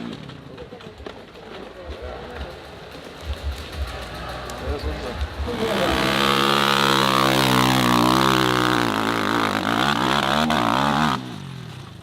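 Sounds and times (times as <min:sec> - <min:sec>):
dirt bike engine revving high: 0:05.5 - 0:11.4.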